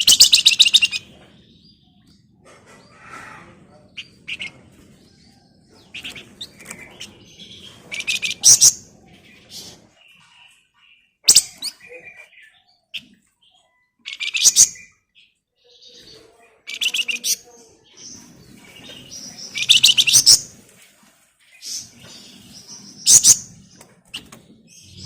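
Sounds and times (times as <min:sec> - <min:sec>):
songbird buzzy chattering: 0:00.0 - 0:01.2, 0:03.9 - 0:04.8, 0:05.7 - 0:09.9, 0:16.7 - 0:20.5, 0:22.6 - 0:25.0
soft bird chirps: 0:00.0 - 0:20.6.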